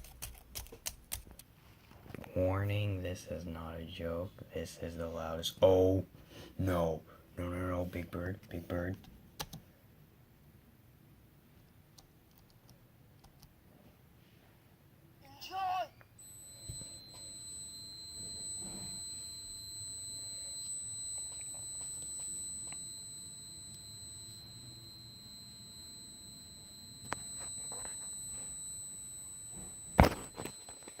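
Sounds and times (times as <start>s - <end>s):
high-pitched electronic tone: 16.2s - 31.0s.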